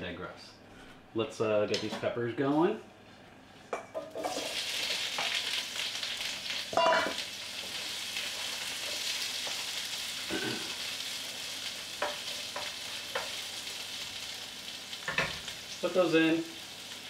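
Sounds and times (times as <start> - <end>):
peppers sizzling in a skillet: 3.9 - 17.0.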